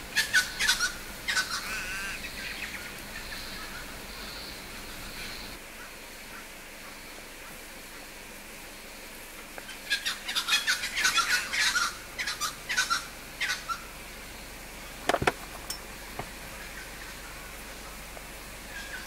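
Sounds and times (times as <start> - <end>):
bird chirping and squawking: 0.2 - 2.6, 10.0 - 13.9.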